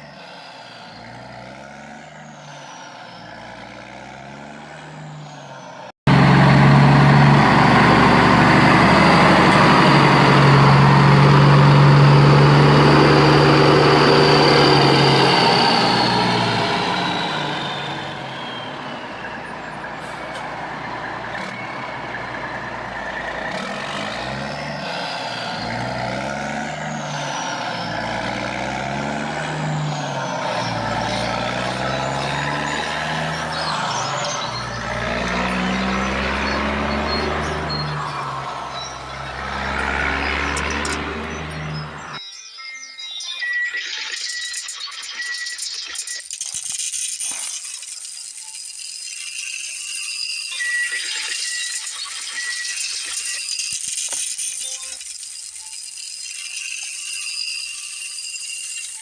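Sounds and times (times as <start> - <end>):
heavy truck engine running: 0.0 - 42.2
quieter engine running: 6.1 - 42.2.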